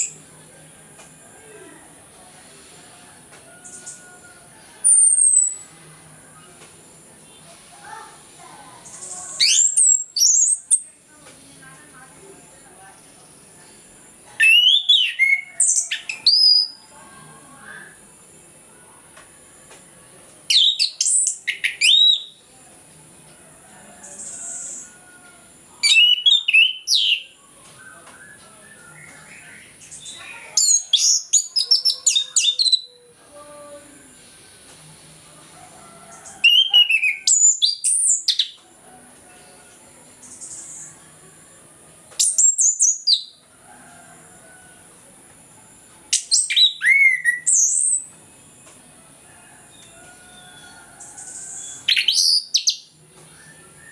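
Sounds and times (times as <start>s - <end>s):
thrush singing whistled phrases: 9.0s - 10.7s, 14.4s - 16.8s, 25.8s - 27.3s, 46.2s - 47.7s.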